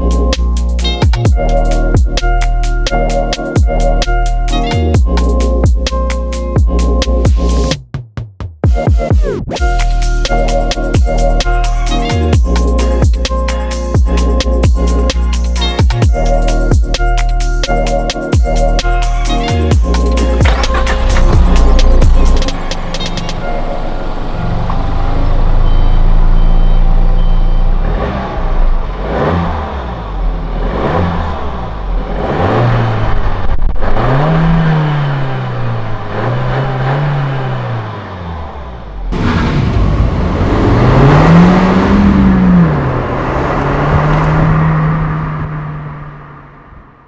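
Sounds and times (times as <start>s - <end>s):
car engine revving: 9.6s - 47.0s.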